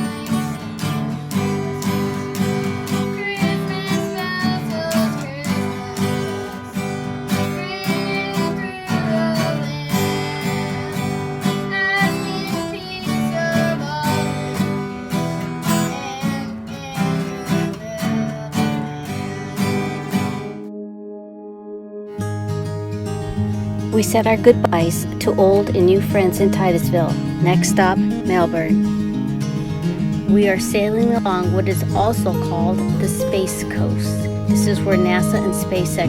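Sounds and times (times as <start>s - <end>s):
acoustic guitar strumming: 0.0s - 36.0s
person singing: 2.6s - 20.6s.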